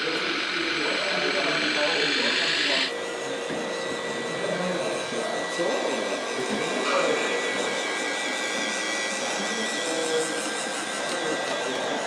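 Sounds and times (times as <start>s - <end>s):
high steady whistle: 0.0s - 3.2s
small electric motor whining: 0.0s - 12.0s.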